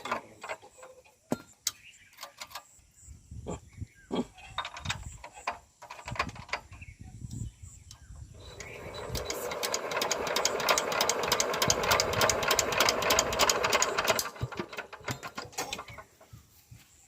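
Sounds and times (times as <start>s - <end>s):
diesel engine turned over by hand: 0.0s - 1.0s, 8.4s - 16.2s.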